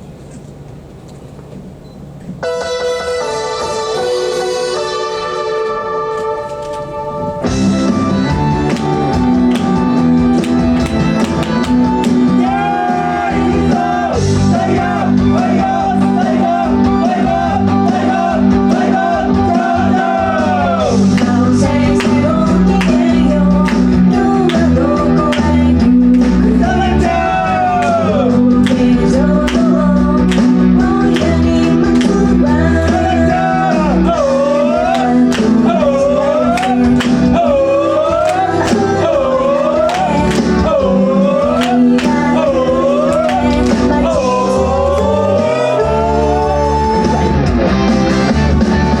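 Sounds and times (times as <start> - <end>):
pop accompaniment with beat: 2.4 - 49.0
woman singing pop song: 20.6 - 47.4.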